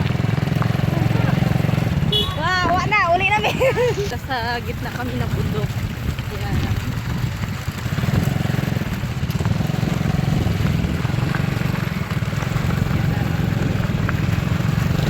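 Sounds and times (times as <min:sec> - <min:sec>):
small motorcycle engine running: 0:00.0 - 0:15.0.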